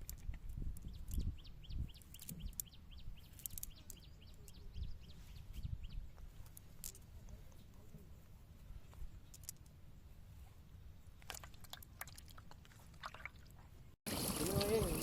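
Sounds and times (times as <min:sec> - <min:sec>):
bird chirping rapidly: 0:00.8 - 0:06.1.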